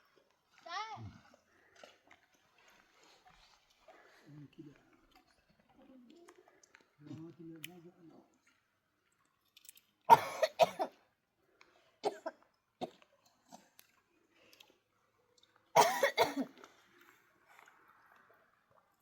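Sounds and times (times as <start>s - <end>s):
person coughing: 10.1s - 10.9s, 15.8s - 16.5s.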